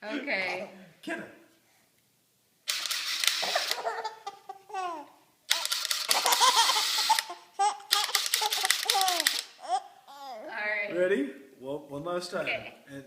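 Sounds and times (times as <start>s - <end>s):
electric drill running: 2.7s - 3.8s, 5.5s - 7.3s
baby girl laughing: 3.4s - 10.5s.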